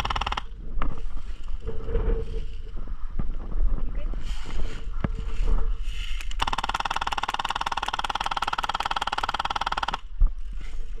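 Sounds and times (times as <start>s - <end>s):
airsoft gun full-auto burst: 0.0s - 0.5s, 6.4s - 10.1s.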